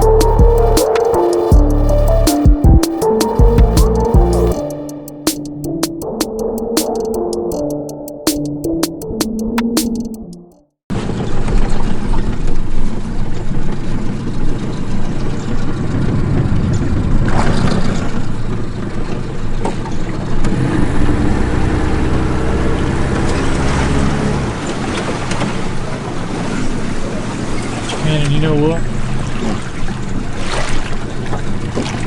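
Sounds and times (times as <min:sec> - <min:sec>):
wind: 0:10.9 - 0:32.0
water noise: 0:11.0 - 0:32.0.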